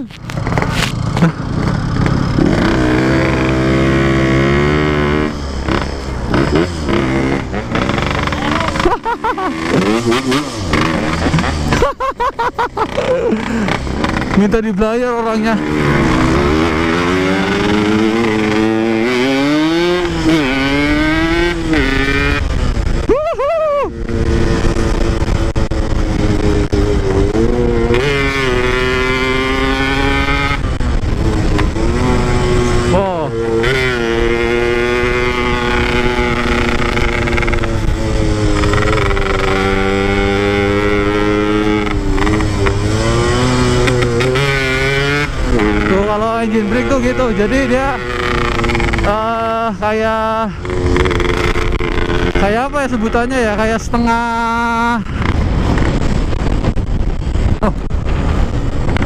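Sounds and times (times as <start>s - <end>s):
motorcycle engine running: 0.0s - 23.1s, 23.9s - 59.0s.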